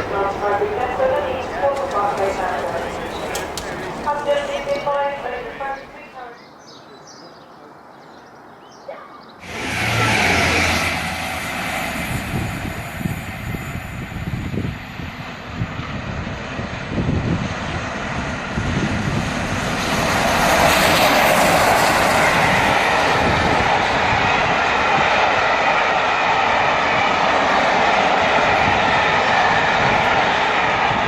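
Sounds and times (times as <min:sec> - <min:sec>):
steam train passing at speed: 0:00.0 - 0:06.1, 0:09.4 - 0:31.0
rush of coaches going by: 0:00.0 - 0:06.2.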